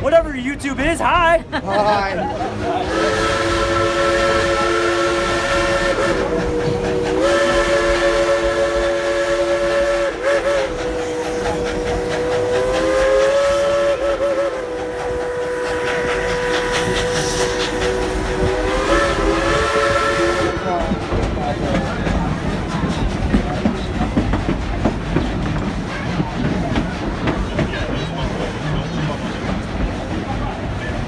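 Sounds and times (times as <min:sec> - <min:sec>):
steam train hiss and running: 0:01.5 - 0:31.0
steam locomotive chime whistle: 0:02.8 - 0:21.9.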